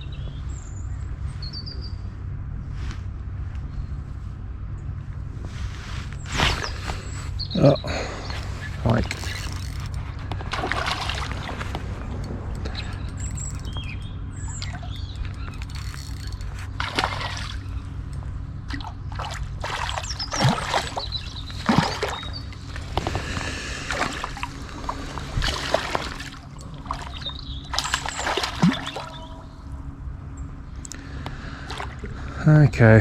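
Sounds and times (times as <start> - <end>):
faint birds chirping: 0.0 - 33.0
fish splashing and thrashing: 6.1 - 32.4.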